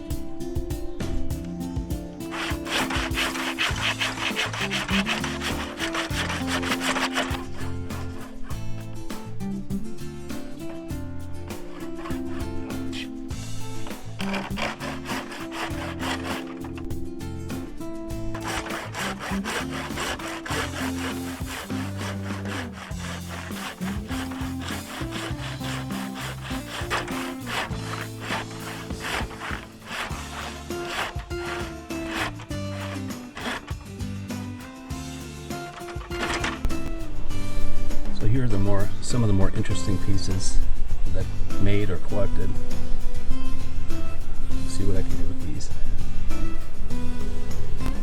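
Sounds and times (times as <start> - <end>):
background music: 0.0 - 48.0
saw cutting through wood: 2.3 - 8.6, 11.6 - 16.9, 17.6 - 36.7.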